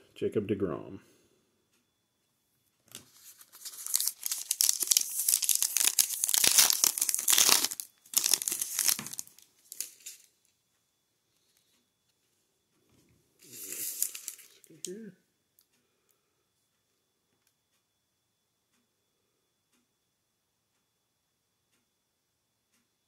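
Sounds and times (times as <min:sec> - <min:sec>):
wrapper tearing and crinkling: 0:02.9 - 0:10.3, 0:13.5 - 0:14.7.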